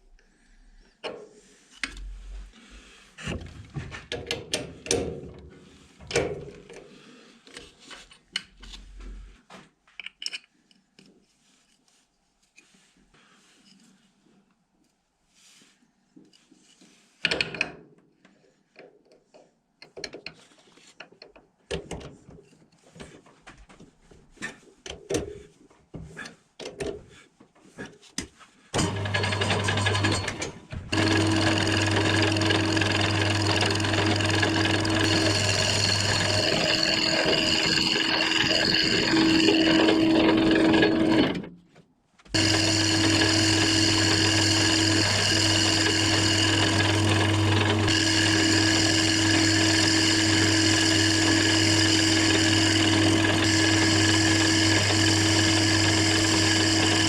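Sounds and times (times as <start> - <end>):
clicks and knocks of tools: 3.8 - 5.5, 9.9 - 11.2, 17.2 - 23.2
electric power tool whining: 28.8 - 41.5, 42.3 - 57.0.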